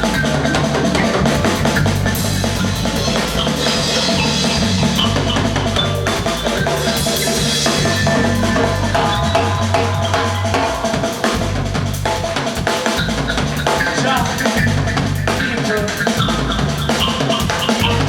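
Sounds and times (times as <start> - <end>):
bass line: 0.0 - 18.0
drum kit beats: 0.0 - 18.0
reggae band playing: 0.0 - 18.0.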